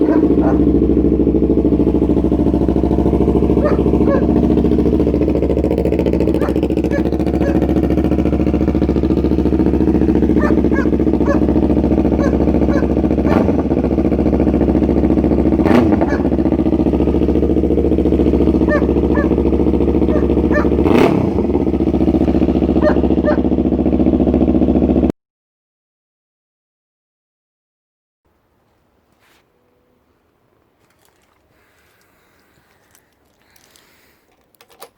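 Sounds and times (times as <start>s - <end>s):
motorcycle engine idling: 0.0s - 25.1s, 30.8s - 34.9s
motorcycle throttle blips: 0.0s - 25.1s.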